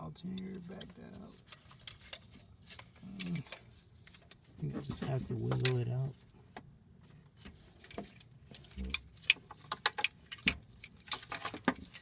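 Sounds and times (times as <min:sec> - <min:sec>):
metal clicks and knocks: 0:05.0 - 0:05.8.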